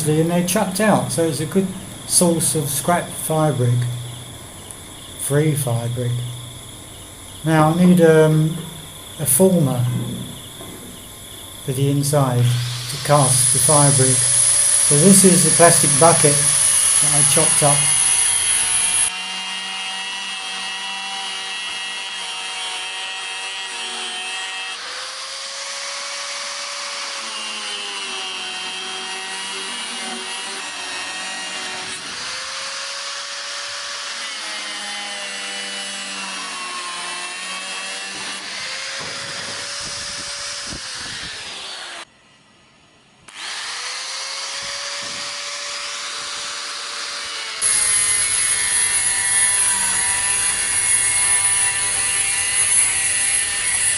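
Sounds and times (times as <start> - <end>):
angle grinder cutting plastic: 12.4 - 42.1, 43.3 - 53.9.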